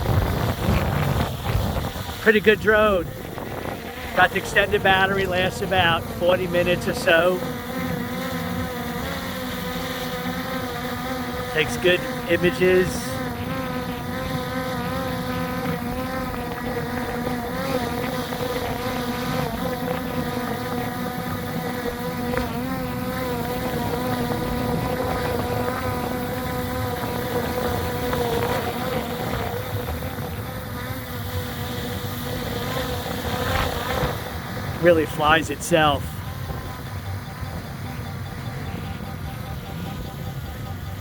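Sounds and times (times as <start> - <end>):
wind noise on microphone: 0.0 - 6.2, 23.4 - 34.8
drone propellers whining: 0.0 - 41.0.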